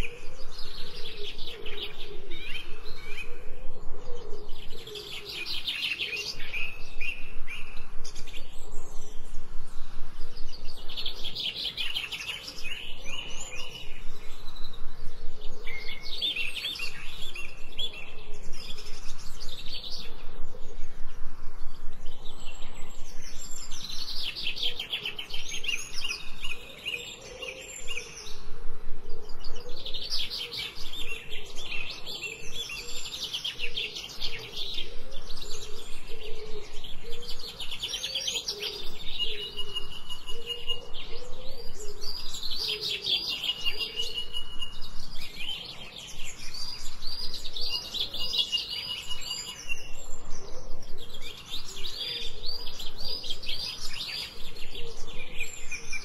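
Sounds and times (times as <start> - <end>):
songbirds trilling: 0.0 - 56.0.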